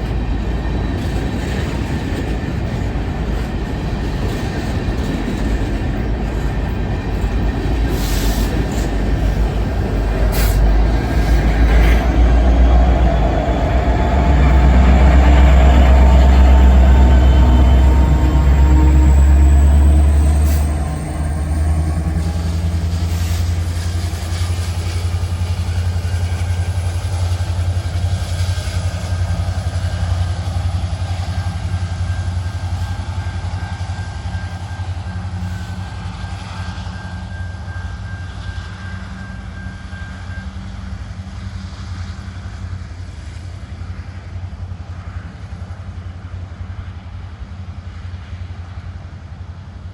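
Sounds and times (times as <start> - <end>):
diesel locomotive drone: 0.0 - 49.9
train rumbling: 0.0 - 49.9
high wheel squeal tone: 6.1 - 41.2.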